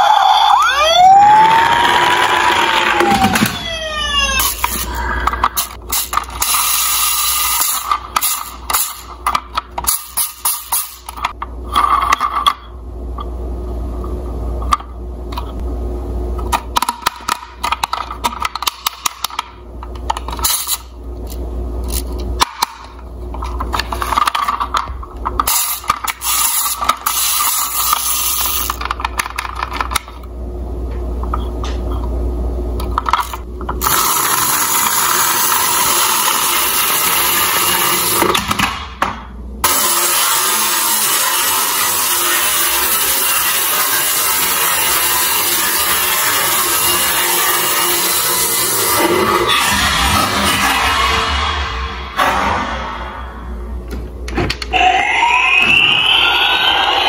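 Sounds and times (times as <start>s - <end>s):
siren wail: 0.0s - 5.5s, 54.7s - 57.0s
toy cars clicking and rattling: 23.4s - 30.1s.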